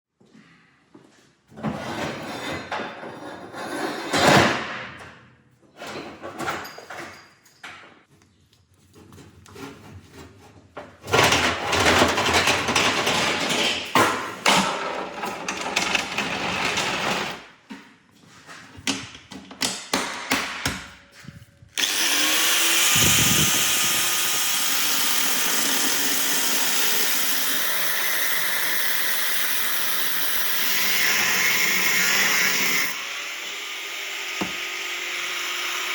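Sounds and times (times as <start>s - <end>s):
power tool running: 21.8s - 35.9s.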